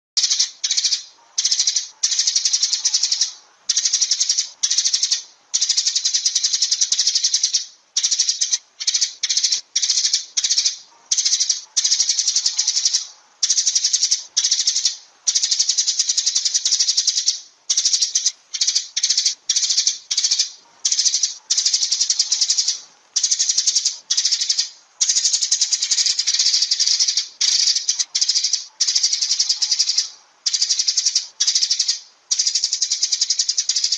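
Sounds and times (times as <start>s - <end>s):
sparrows chirping: 0.2s - 33.9s.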